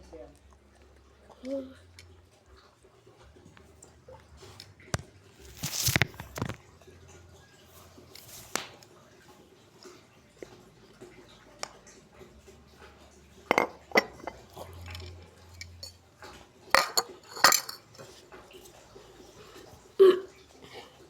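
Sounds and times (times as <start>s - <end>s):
dishes and cutlery clinking: 12.7s - 19.3s.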